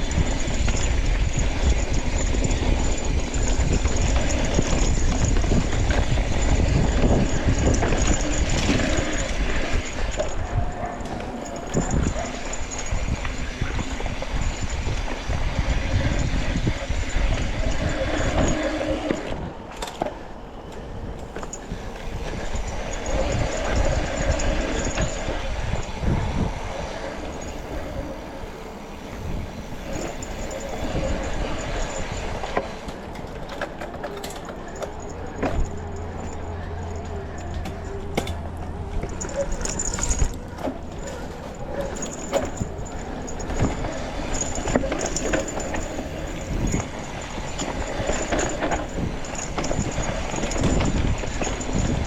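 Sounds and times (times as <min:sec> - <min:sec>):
steady rumble: 0:00.0 - 0:17.9, 0:20.2 - 0:52.0
bike clattering over bumps: 0:27.0 - 0:52.0.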